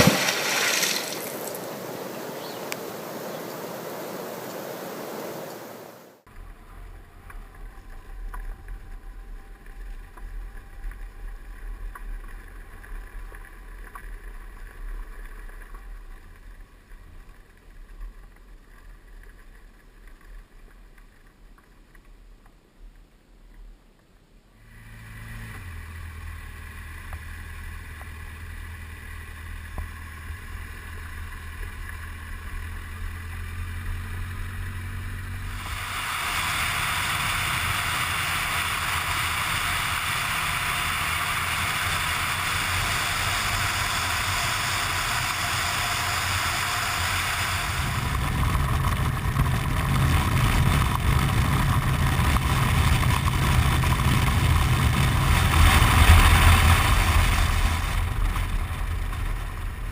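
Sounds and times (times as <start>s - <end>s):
boat motor humming: 24.6s - 59.9s
hiss: 34.7s - 48.8s.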